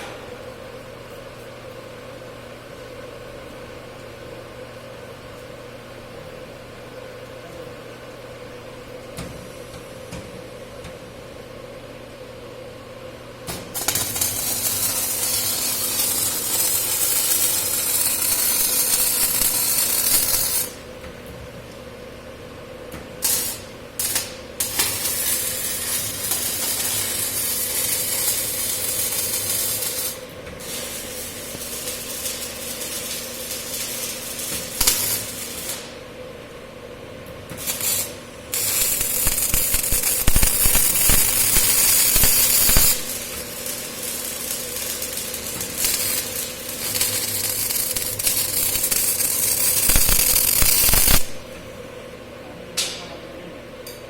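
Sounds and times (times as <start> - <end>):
steady hum: 0.0 - 54.0
welding arc sizzling: 13.4 - 21.1, 23.2 - 36.2, 37.5 - 52.0.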